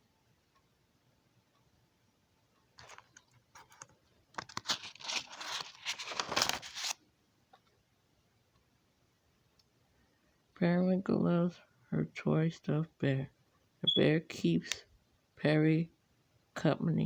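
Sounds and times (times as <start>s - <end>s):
crinkling and rustling: 2.7s - 7.7s.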